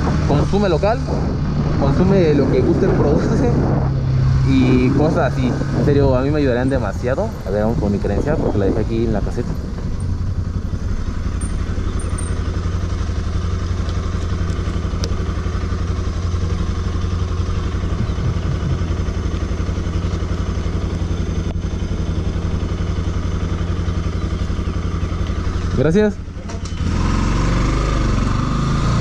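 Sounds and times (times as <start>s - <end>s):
motorcycle engine idling: 6.2s - 26.9s.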